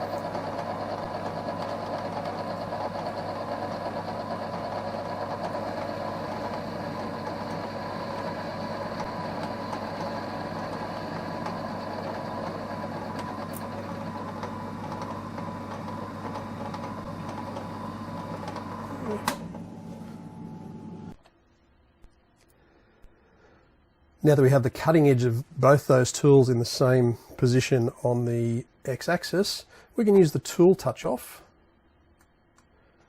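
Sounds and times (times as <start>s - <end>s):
lathe running: 0.0s - 21.2s.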